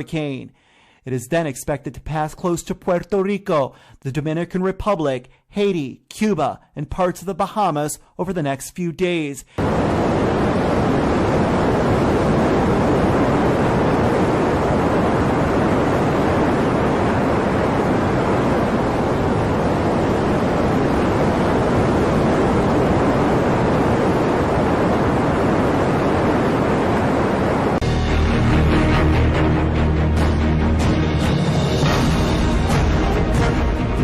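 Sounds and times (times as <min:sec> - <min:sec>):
storm wind rushing: 0:09.5 - 0:34.0
surf: 0:09.6 - 0:34.0.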